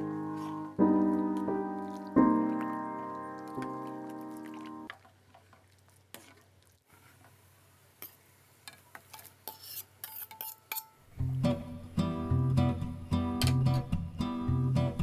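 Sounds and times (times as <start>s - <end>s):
utensil clinking and scraping pot: 8.7s - 11.0s
guitar music: 11.2s - 15.0s.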